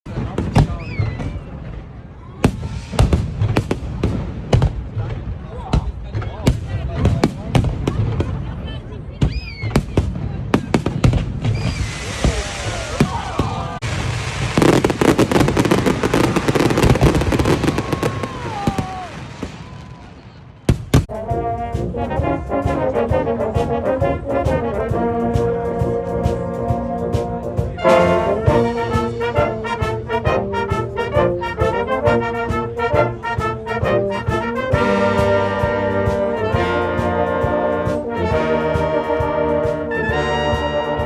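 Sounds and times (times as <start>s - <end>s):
fireworks crackling and whistling: 0.1s - 5.0s, 9.3s - 21.1s
brass band playing: 21.0s - 41.0s.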